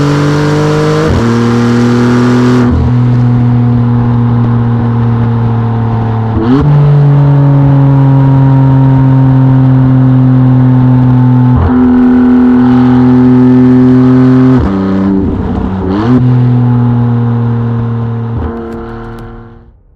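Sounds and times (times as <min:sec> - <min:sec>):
sports car engine revving: 0:18.4 - 0:19.5.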